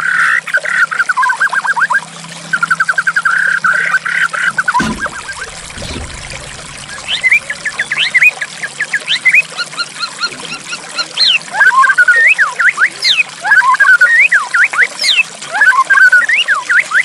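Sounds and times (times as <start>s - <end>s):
trickle of running water: 0.0s - 17.0s.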